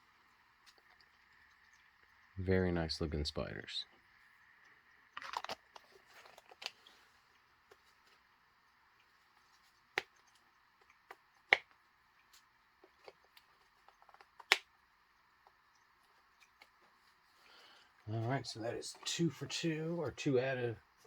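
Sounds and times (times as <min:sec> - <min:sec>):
plastic packaging rustle: 0:05.2 - 0:08.3.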